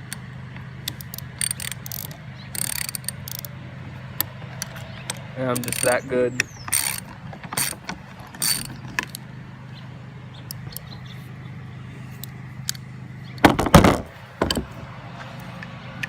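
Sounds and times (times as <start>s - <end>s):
metal tools clanking: 0.8s - 3.5s, 4.2s - 9.2s.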